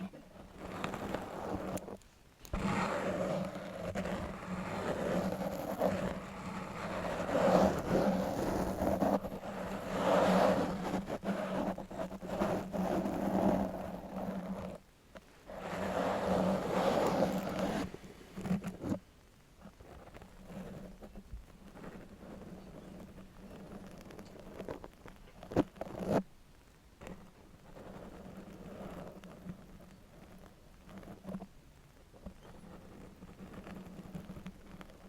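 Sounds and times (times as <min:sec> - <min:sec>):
metal nail scratching a surface: 0:00.6 - 0:14.8, 0:15.6 - 0:19.0.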